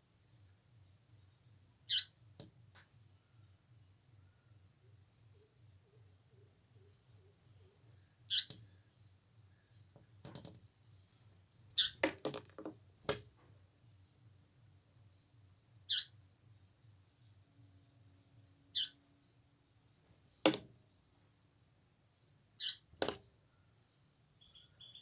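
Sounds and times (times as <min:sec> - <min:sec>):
sharp knocks: 0:11.9 - 0:13.2, 0:20.5 - 0:20.7, 0:23.0 - 0:23.2.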